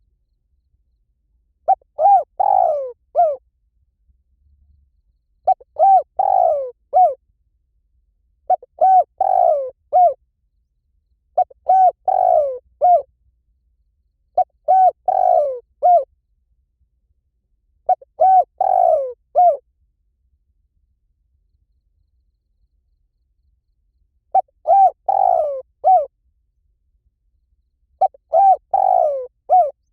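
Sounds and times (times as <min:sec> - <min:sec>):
dove cooing: 0:01.7 - 0:03.4, 0:05.4 - 0:07.2, 0:08.5 - 0:10.2, 0:11.4 - 0:13.1, 0:14.4 - 0:16.1, 0:17.9 - 0:19.6, 0:24.3 - 0:26.1, 0:28.0 - 0:29.9.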